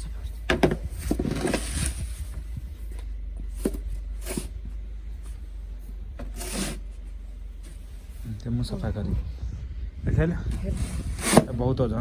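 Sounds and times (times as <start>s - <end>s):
steady low rumble: 0.0s - 12.0s
crunching scraping in snow: 0.9s - 2.9s.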